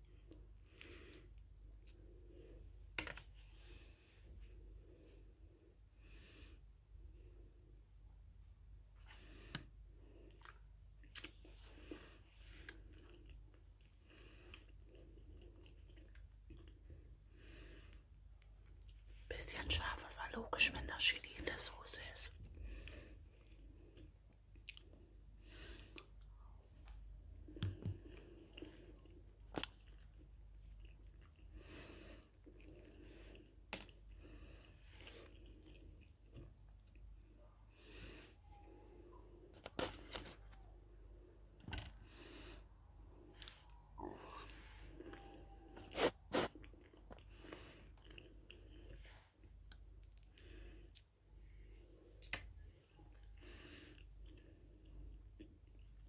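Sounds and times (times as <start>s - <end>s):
chewing food: 9.0s - 19.2s, 22.5s - 37.6s, 43.2s - 56.0s.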